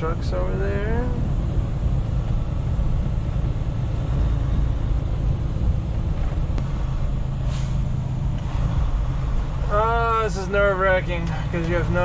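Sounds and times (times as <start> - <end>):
truck diesel engine running: 0.0 - 12.0
short hiss: 7.5 - 7.9.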